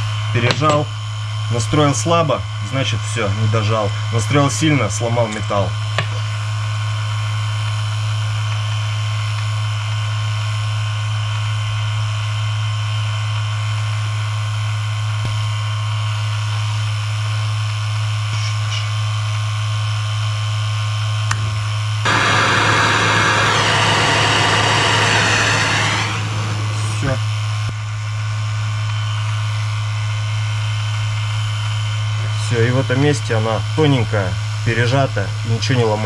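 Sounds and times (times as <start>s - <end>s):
vacuum pump electric hum: 0.0s - 32.6s
loud hiss: 22.1s - 27.6s.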